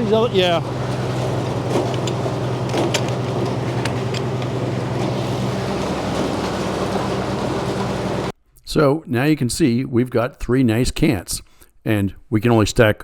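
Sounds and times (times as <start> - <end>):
sawmill machine hum: 0.0 - 8.3.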